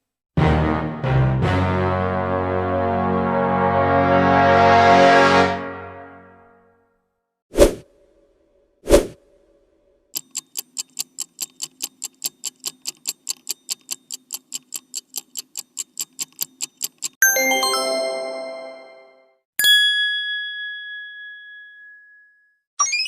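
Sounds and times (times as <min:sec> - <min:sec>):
clock ticking: 0:10.2 - 0:17.2
bright bell chime: 0:17.2 - 0:22.4
single bell ding: 0:19.6 - 0:22.6.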